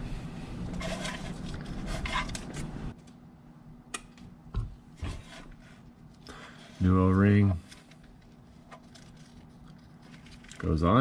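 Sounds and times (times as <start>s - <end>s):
rustling of small parts: 7.6s - 11.0s.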